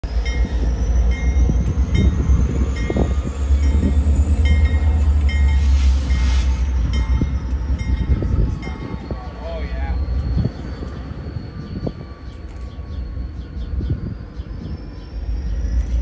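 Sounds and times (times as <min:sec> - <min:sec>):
regular rail clicks: 0:00.0 - 0:16.0
train rumbling: 0:00.0 - 0:16.0.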